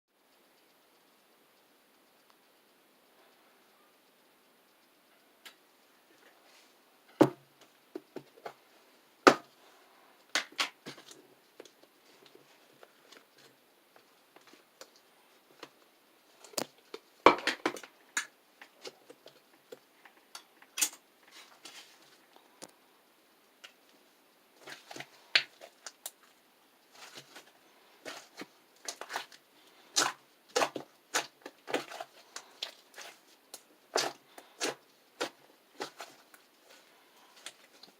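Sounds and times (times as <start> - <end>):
slime crackling and popping: 26.9 - 37.9.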